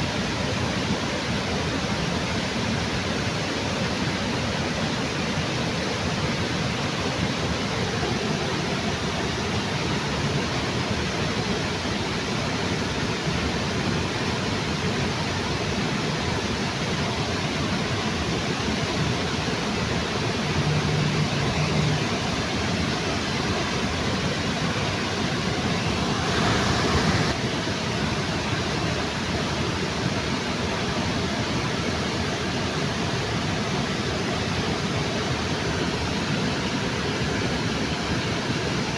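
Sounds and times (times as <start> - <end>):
waterfall rushing: 17.1 - 38.9.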